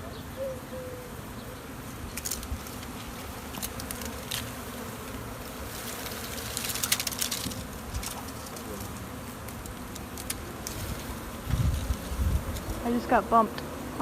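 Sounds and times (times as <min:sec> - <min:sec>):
bee swarm buzzing: 0:00.0 - 0:14.0.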